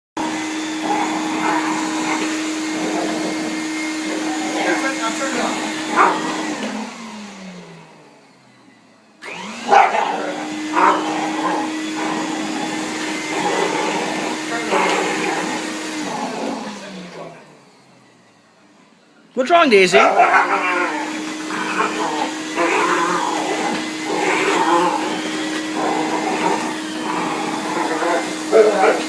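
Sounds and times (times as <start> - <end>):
vacuum motor winding down: 0.2 - 18.4, 20.3 - 29.0
vacuum cleaner running: 0.2 - 29.0
dog barking: 5.9 - 6.4, 9.6 - 11.6, 19.9 - 20.9, 28.5 - 29.0.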